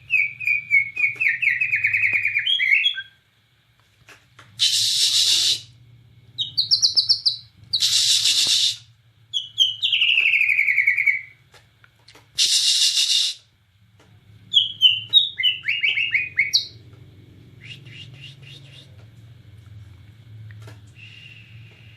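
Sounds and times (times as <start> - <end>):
bird singing fluty whistles: 0.1 - 3.2, 6.4 - 11.4, 14.5 - 16.8, 17.6 - 18.9.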